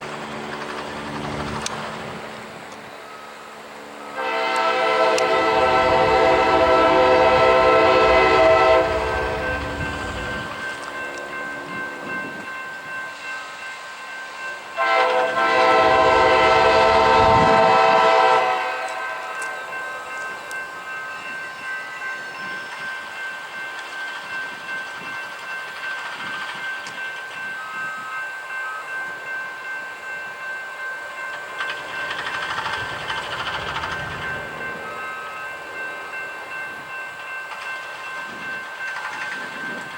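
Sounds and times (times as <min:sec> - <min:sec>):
train wheels rumbling on rail: 0:00.0 - 0:39.9
locomotive horn blast: 0:04.1 - 0:10.0, 0:14.8 - 0:19.8.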